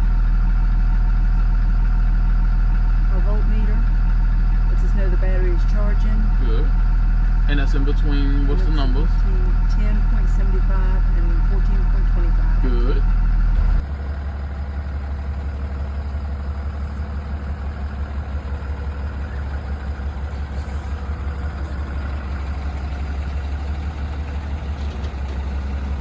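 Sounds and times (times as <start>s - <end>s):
bus engine idling: 0.0s - 26.0s.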